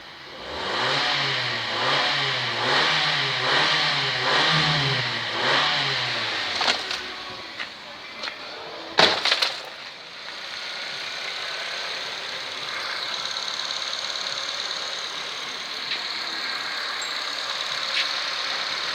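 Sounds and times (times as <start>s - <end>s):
car engine idling: 0.0s - 18.9s.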